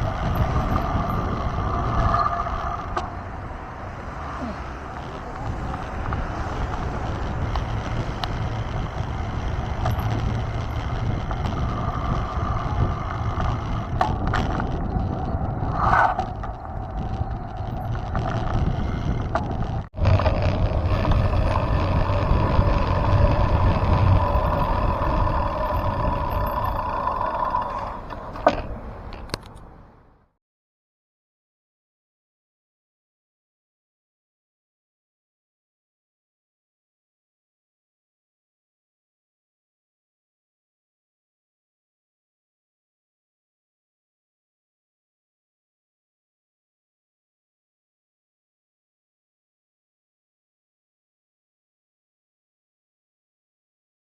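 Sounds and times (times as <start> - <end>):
mountain bike rolling: 0.0 - 29.6
wind noise: 0.0 - 30.1.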